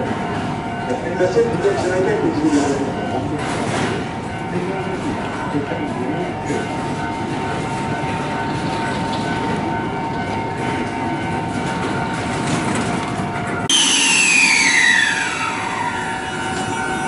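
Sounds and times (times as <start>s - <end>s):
train rumble: 0.0s - 13.7s
high falling whine: 13.7s - 17.0s.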